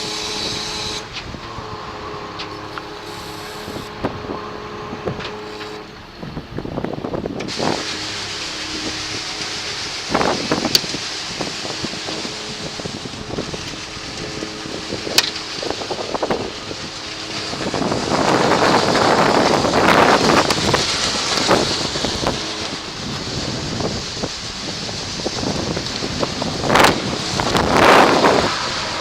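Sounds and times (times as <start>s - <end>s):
wind gusting across microphone: 0.0s - 29.0s.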